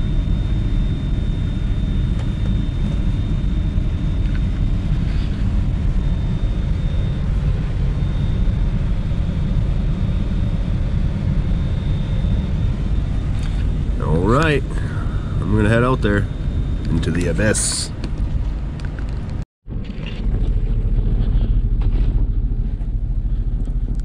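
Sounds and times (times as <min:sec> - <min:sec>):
faint high whine: 0:00.0 - 0:24.0
truck engine idling: 0:11.4 - 0:18.8, 0:19.7 - 0:24.0.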